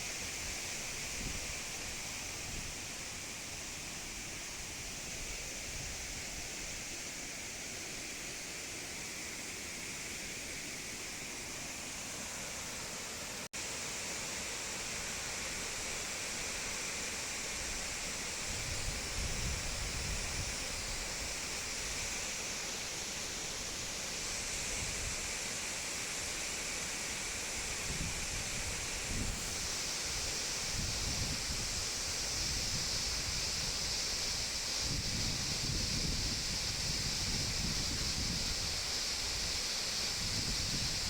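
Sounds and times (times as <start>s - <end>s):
wind rumbling on microphone: 0.0s - 6.8s, 17.6s - 22.2s, 27.5s - 41.0s.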